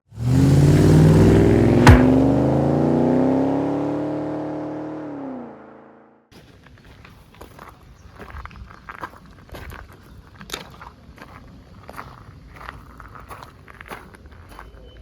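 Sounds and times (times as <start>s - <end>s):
car engine revving: 0.1s - 6.1s
sharp crack: 1.7s - 2.6s.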